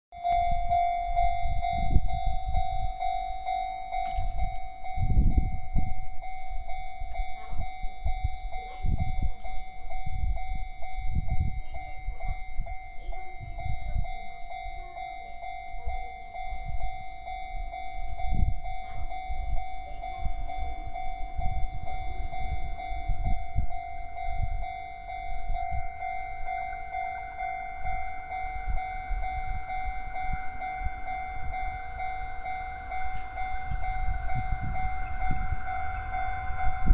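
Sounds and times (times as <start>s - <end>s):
level crossing warning bell: 0.1s - 36.9s
low rumbles: 21.2s - 36.9s.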